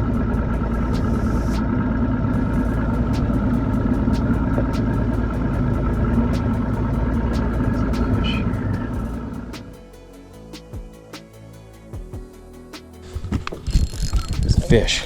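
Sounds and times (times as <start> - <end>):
boat motor running: 0.0 - 9.6.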